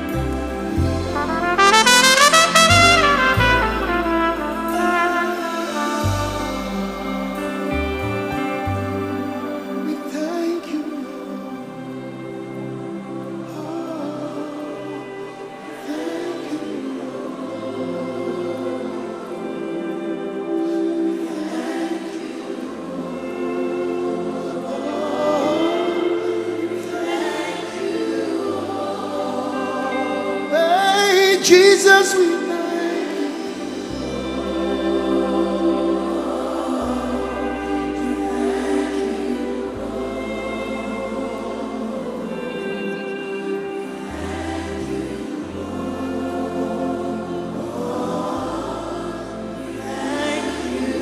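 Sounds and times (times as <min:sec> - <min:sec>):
long held bass notes: 0:00.0 - 0:09.6
keyboard chords: 0:00.0 - 0:14.5
low sustained chords: 0:00.0 - 0:21.3, 0:22.3 - 0:51.0
choir and congregation singing: 0:00.0 - 0:51.0.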